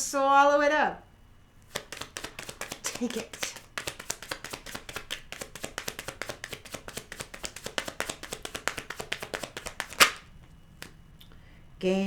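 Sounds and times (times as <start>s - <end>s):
cards being shuffled: 1.6s - 11.0s.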